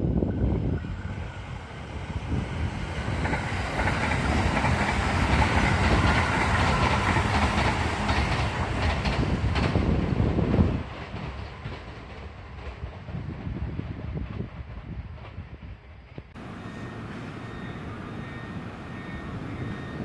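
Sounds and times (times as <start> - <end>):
train wheels clattering: 3.2 - 10.0, 16.4 - 20.0.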